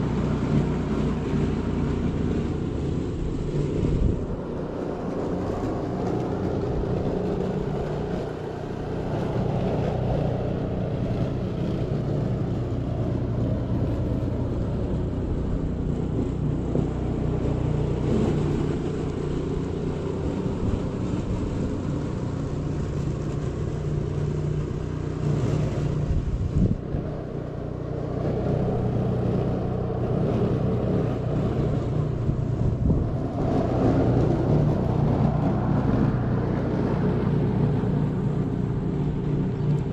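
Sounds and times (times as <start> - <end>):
low engine drone: 0.0 - 39.9.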